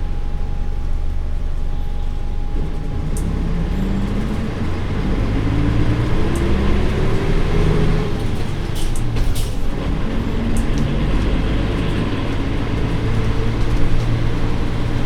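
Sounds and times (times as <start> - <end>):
bus diesel engine revving up: 2.5 - 15.0.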